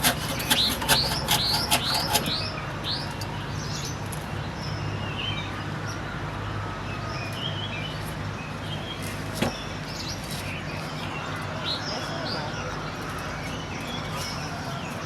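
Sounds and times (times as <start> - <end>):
small birds chirping: 0.0 - 6.1, 7.0 - 15.0.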